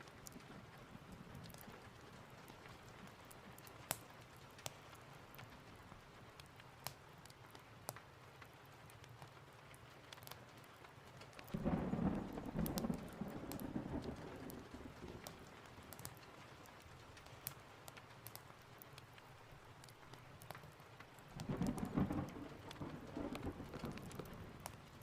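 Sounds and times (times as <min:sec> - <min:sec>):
fireplace crackling: 0:00.0 - 0:25.0
steady rain: 0:00.0 - 0:25.0
thunder rumbling: 0:11.5 - 0:15.9, 0:21.4 - 0:25.0.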